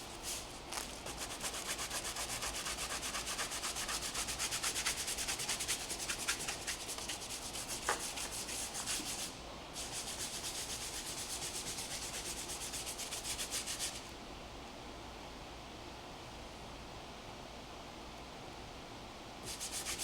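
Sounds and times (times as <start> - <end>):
hand scrubbing car: 0.1 - 8.8.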